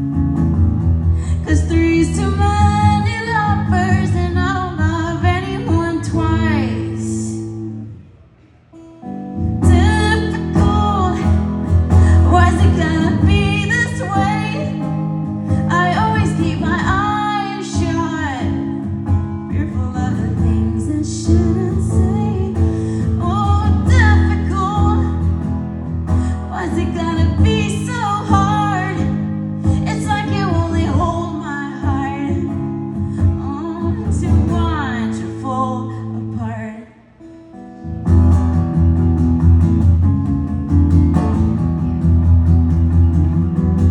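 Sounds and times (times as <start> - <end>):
guitar: 0.0 - 43.9
woman singing: 1.2 - 7.7, 9.5 - 37.1.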